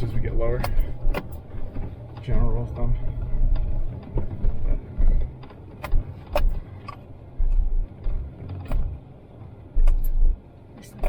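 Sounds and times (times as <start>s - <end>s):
truck rumbling over rough trail: 0.0s - 11.0s.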